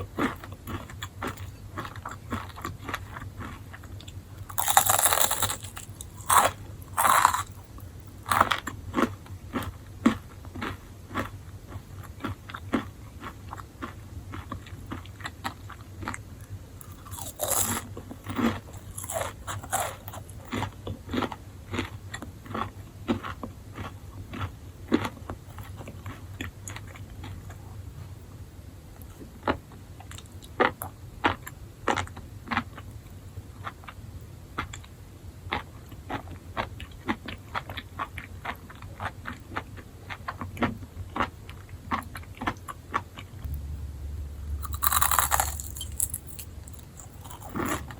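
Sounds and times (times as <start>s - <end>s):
faint low hum: 0.0s - 47.9s
crunchy bites: 0.2s - 11.3s, 16.8s - 26.2s, 43.4s - 47.9s.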